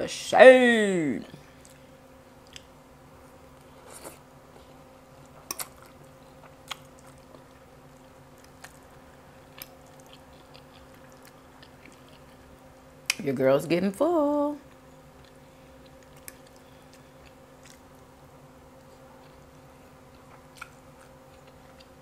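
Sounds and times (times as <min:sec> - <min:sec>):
faint steady hum: 0:00.0 - 0:22.0
person chewing and biting: 0:05.2 - 0:12.6, 0:14.7 - 0:18.0, 0:18.8 - 0:22.0.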